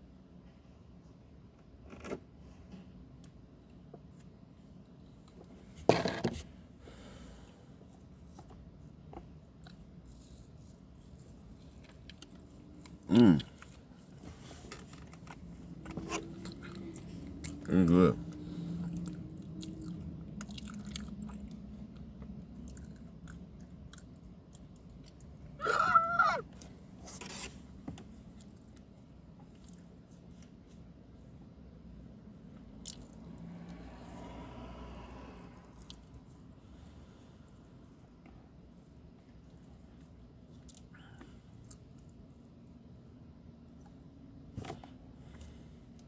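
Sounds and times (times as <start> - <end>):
person chewing food: 18.8 - 26.2, 32.8 - 33.2.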